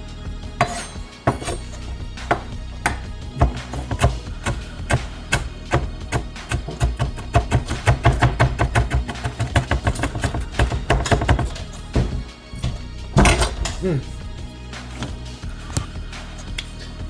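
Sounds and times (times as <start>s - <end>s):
background music: 0.0s - 17.0s
knife chopping on cutting board: 0.6s - 1.6s, 2.3s - 12.1s.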